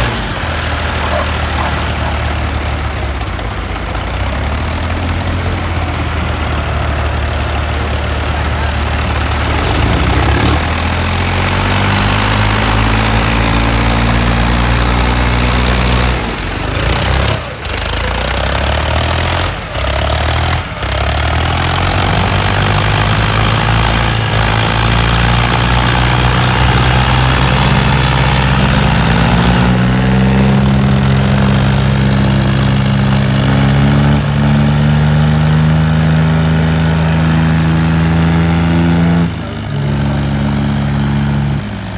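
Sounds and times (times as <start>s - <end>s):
tractor engine revving: 0.0s - 41.9s.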